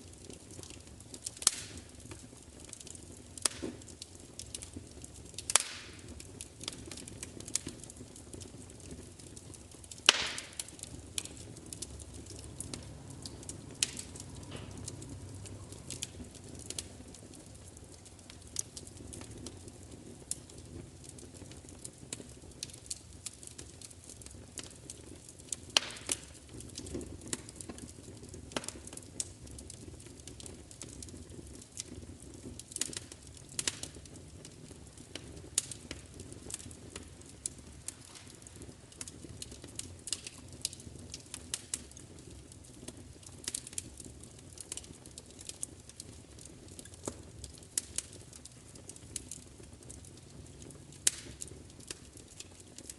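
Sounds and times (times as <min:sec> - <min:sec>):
wood fire crackling and popping: 0:00.0 - 0:52.9
low steady rumble: 0:10.8 - 0:18.4.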